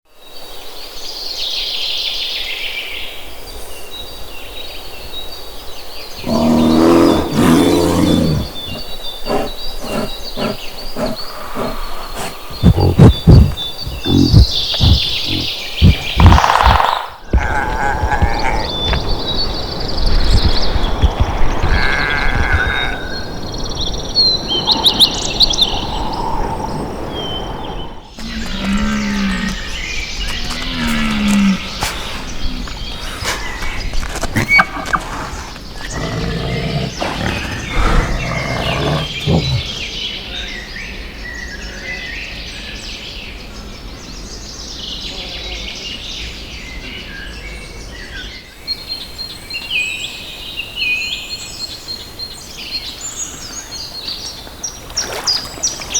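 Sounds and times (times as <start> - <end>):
small birds chirping: 0.2 - 55.9
bison bellowing: 6.2 - 19.2, 28.2 - 39.9.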